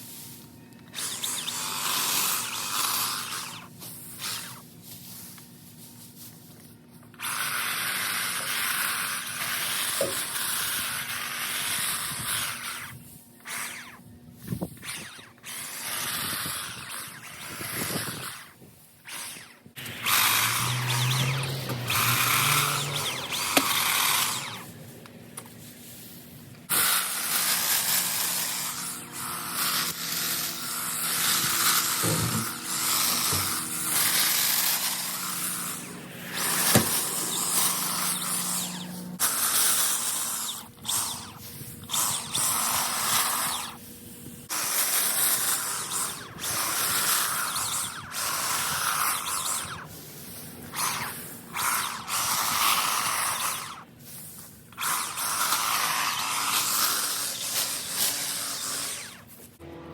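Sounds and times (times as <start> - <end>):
hedge trimmer running: 0.0 - 59.9.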